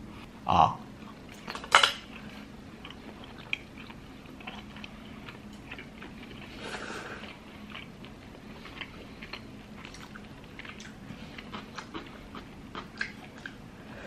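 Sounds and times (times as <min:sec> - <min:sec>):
person chewing food: 0:01.0 - 0:13.7
wet mouth clicks and crunches: 0:08.7 - 0:13.6.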